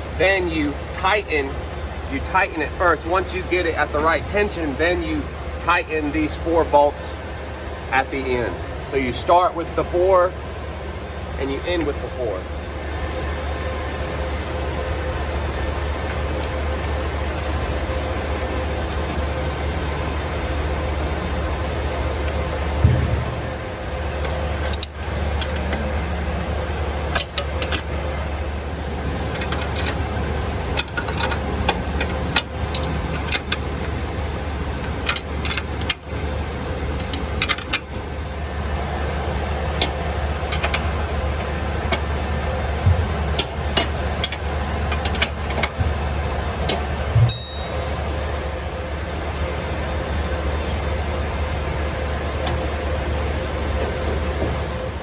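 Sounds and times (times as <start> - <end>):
low machinery hum: 0.0 - 55.0
metal tools clinking and knocking: 46.6 - 48.1.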